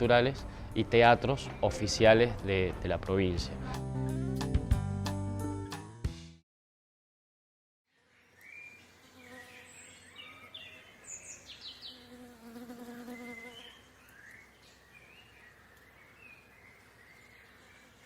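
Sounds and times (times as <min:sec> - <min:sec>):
birds chirping: 0:00.0 - 0:03.4, 0:07.9 - 0:18.0
insect buzzing: 0:07.9 - 0:10.6, 0:11.4 - 0:14.3.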